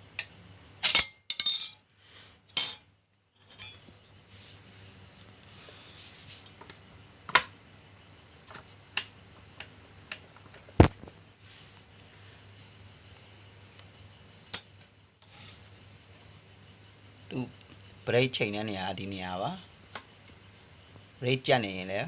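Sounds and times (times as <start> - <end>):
metal tools clinking: 0.2 - 1.8, 2.5 - 3.9, 14.5 - 15.9.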